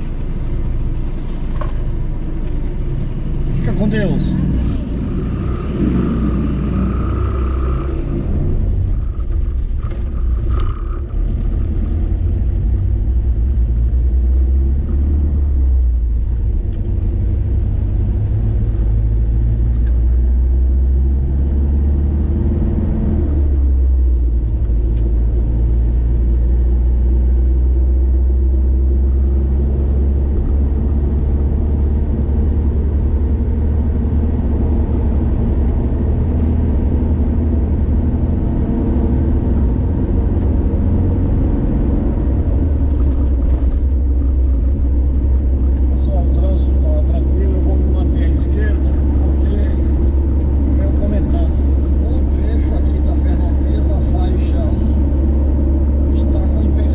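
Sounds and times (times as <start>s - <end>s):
car engine and road noise: 0.0s - 56.9s.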